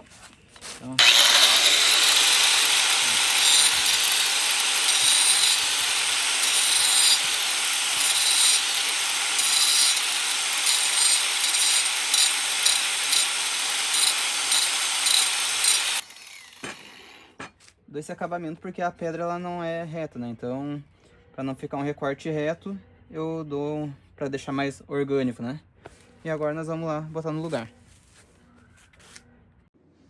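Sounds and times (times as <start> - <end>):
angle grinder grinding stone: 1.0 - 17.5.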